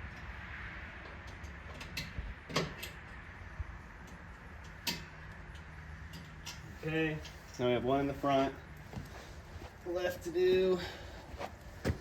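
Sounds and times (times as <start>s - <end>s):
clicks and knocks of parts: 4.0s - 6.6s.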